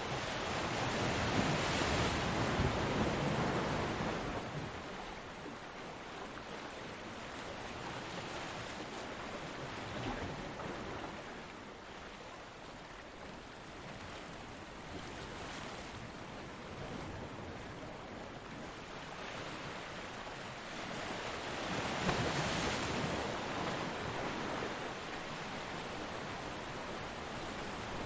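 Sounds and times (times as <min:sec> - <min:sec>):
ocean waves breaking: 0:13.8 - 0:28.0.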